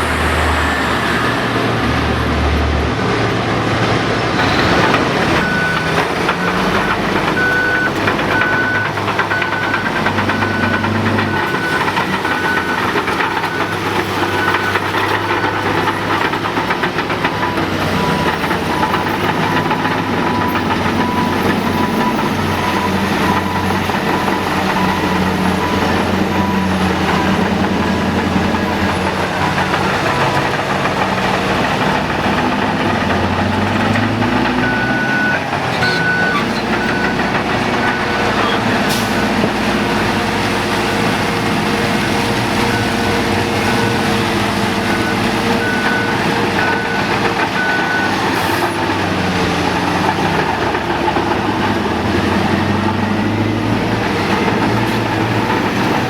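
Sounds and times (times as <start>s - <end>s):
heavy diesel machines running: 0.0s - 56.0s
backup alarm beeping: 4.4s - 30.6s, 31.8s - 39.6s, 42.0s - 48.8s.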